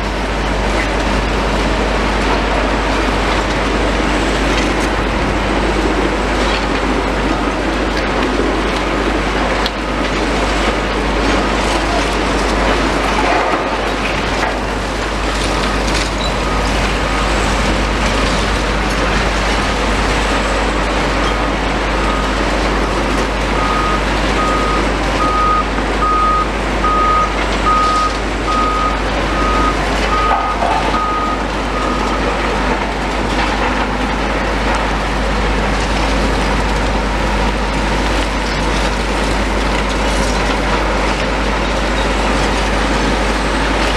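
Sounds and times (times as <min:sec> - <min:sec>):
heavy machinery running: 0:00.0 - 0:43.9
reversing alarm beeps: 0:15.4 - 0:17.5, 0:22.0 - 0:22.4, 0:23.6 - 0:32.3.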